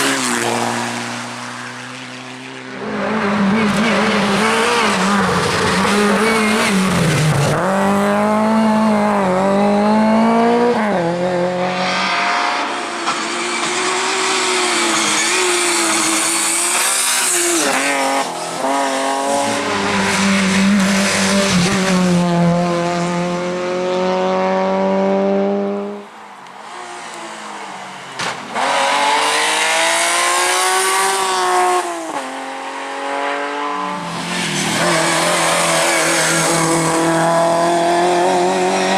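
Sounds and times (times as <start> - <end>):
rally car engines revving: 0.0 - 38.9
tyre squeal: 34.3 - 36.9.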